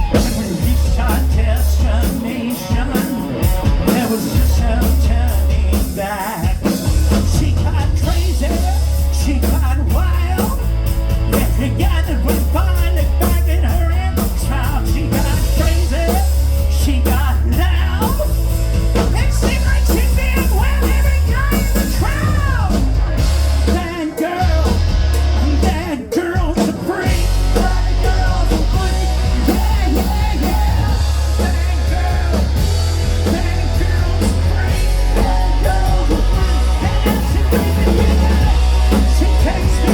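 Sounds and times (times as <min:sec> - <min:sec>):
person singing: 0:00.0 - 0:10.7, 0:25.4 - 0:39.9
rock band playing live: 0:00.0 - 0:39.9.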